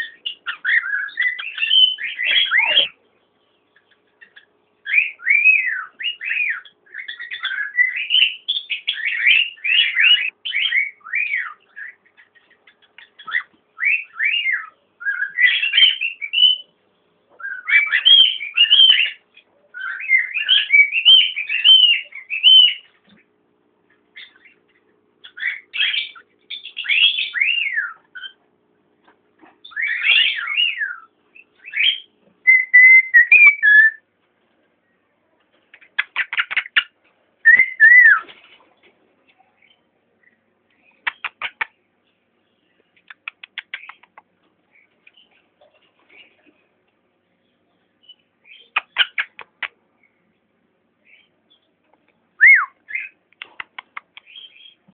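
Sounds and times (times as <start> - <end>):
cockatiel whistling: 29.6 - 34.0, 37.4 - 38.2, 52.4 - 53.2.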